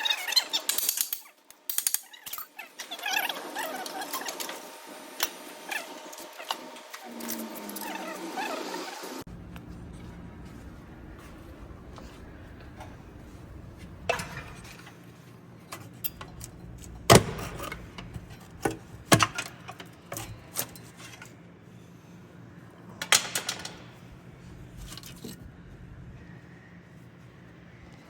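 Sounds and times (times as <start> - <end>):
metal tools clinking and knocking: 0.0 - 4.6, 12.0 - 15.0, 15.7 - 21.3
faint low hum: 9.3 - 23.1.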